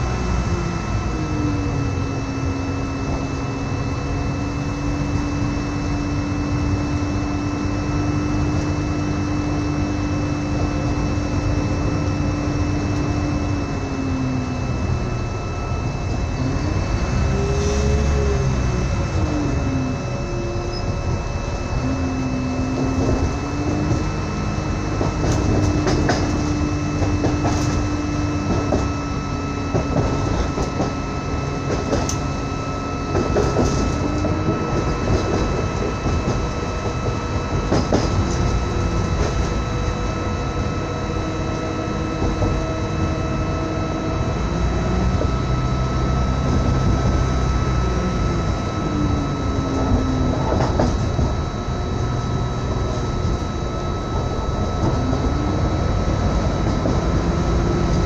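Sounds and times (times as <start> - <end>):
low humming drive tone: 0.0 - 58.0
thin steady whines: 0.0 - 58.0
train running rumble: 0.0 - 58.0
wheels clicking over track: 25.0 - 28.9.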